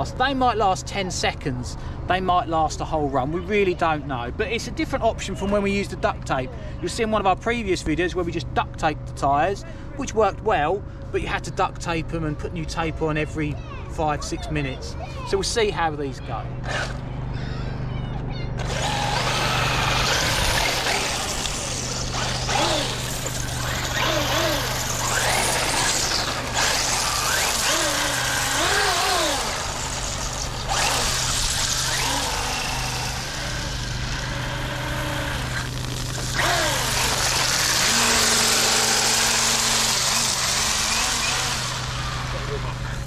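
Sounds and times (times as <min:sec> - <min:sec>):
electric motor whining: 0:16.6 - 0:17.7, 0:18.6 - 0:43.0.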